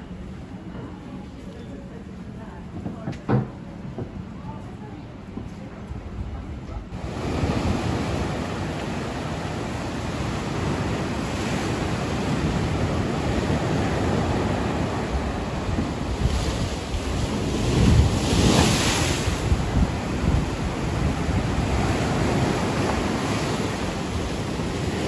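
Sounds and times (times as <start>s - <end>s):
wind on the microphone: 5.3s - 25.0s
surf breaking on a beach: 6.9s - 25.0s.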